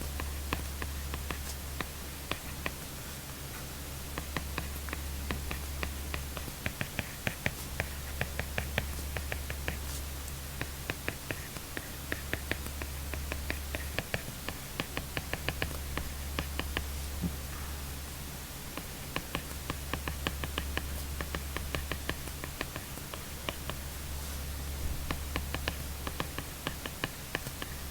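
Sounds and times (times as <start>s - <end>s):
steady low hum: 0.0s - 27.9s
stylus tapping on tablet screen: 4.2s - 9.8s, 10.6s - 17.4s, 18.8s - 23.8s, 25.1s - 27.8s.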